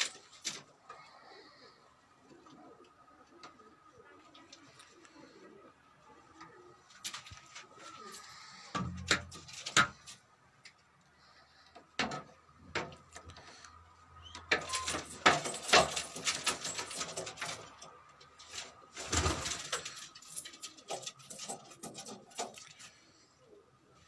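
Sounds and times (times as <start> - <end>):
pigeons cooing: 0.0 - 10.1, 12.7 - 24.0
pigeons scuffling: 0.0 - 24.0
wings fluttering: 14.7 - 23.0.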